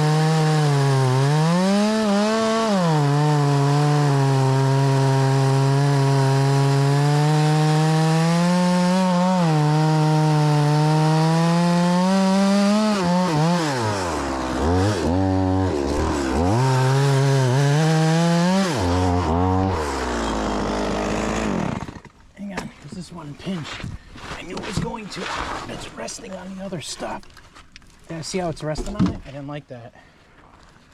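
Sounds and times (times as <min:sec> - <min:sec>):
chainsaw cutting through log: 0:00.0 - 0:22.2.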